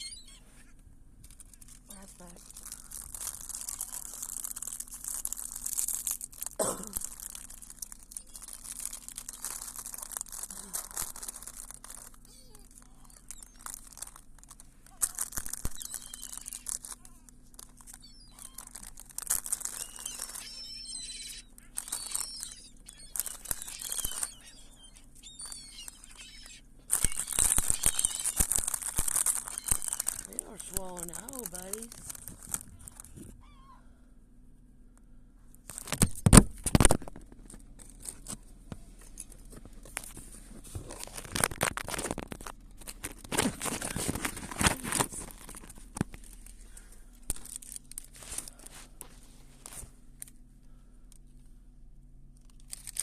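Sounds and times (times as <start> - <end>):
gulls calling: 0.0 - 0.8, 12.0 - 34.0
crinkling rustling noise: 0.0 - 33.4, 35.6 - 50.4, 52.4 - 53.0.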